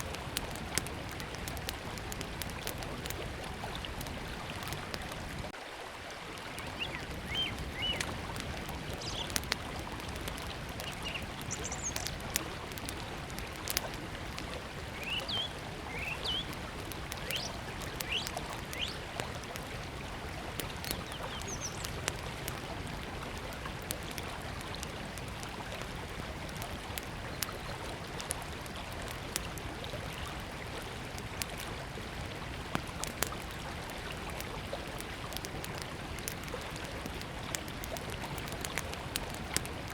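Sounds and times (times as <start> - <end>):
river water flowing: 0.0 - 39.9
wood fire crackling: 0.0 - 39.9
high bird chirps: 11.0 - 12.0.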